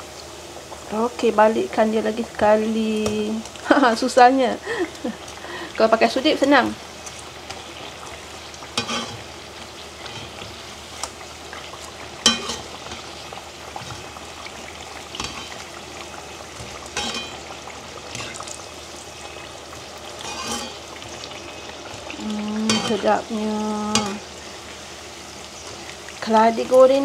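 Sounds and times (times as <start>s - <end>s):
food sizzling in hot oil: 0.0s - 27.0s.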